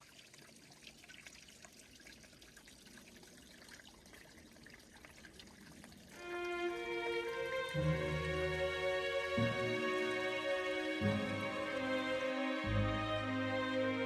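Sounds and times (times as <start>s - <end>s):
water trickling from waterfall: 0.0s - 12.2s
soft music with held notes: 6.2s - 14.0s.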